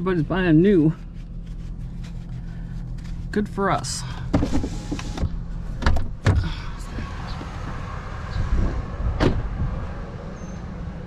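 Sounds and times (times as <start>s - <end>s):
vehicle engine idling: 0.0s - 8.5s
sharp knocks and clunks: 5.8s - 6.5s.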